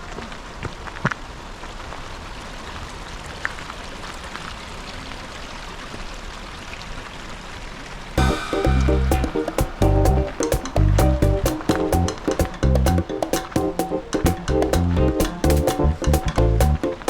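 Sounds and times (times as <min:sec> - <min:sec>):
music: 0:08.2 - 0:17.0.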